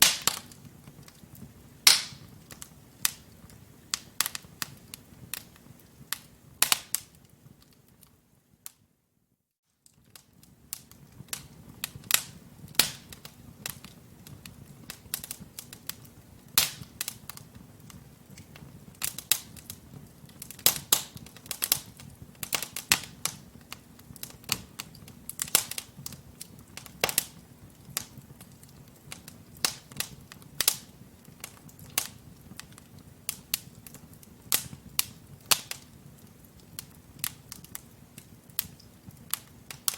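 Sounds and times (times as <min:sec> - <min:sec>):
logs popping and snapping: 0:01.9 - 0:03.2.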